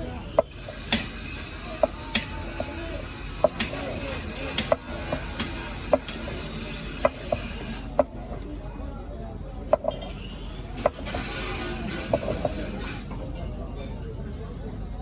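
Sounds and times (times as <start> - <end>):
metal tools clinking: 0.2 - 8.1.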